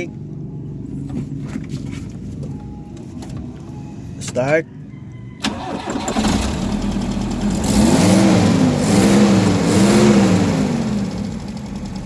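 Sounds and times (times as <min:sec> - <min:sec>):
car engine revving: 0:05.4 - 0:12.0.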